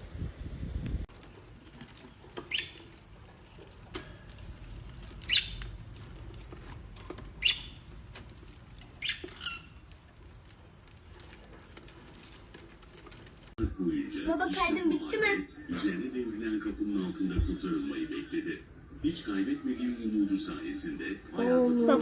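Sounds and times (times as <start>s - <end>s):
parrot squawking: 2.3s - 13.5s.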